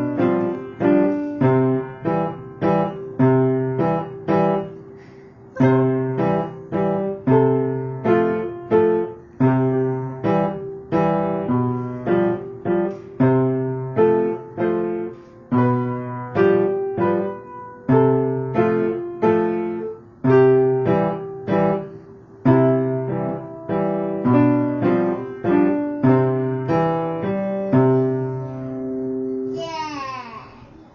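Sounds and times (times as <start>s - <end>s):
child playing piano melody: 0.0s - 30.0s.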